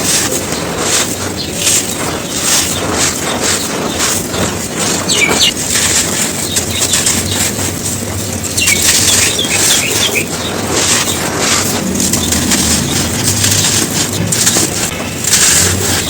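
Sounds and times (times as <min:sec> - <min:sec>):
dry cones crunching: 0:00.0 - 0:16.0
bird chirps: 0:01.4 - 0:05.6, 0:06.4 - 0:07.6, 0:08.5 - 0:11.2.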